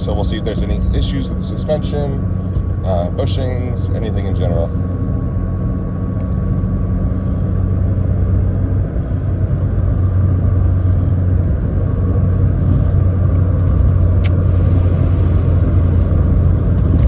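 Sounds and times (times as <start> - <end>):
car engine drone: 0.0 - 17.0
tyre and road noise: 0.0 - 17.0
sharp click: 14.2 - 14.4.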